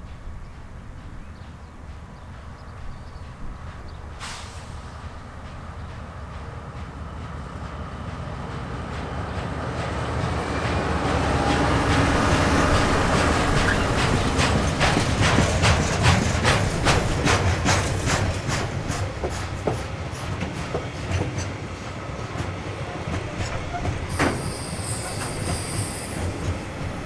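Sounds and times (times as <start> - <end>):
train rumble: 0.0 - 27.0
train wheels clicking over rail joints: 0.0 - 27.0.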